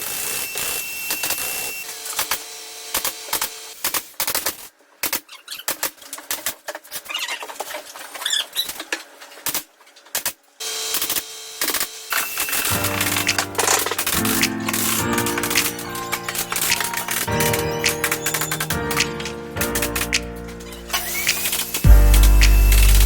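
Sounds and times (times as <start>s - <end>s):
short high squeak: 20.5s - 23.0s.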